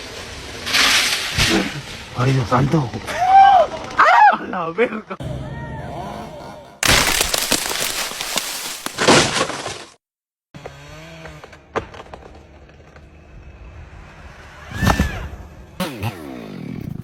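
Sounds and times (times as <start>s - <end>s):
tree crashing down: 6.8s - 10.0s.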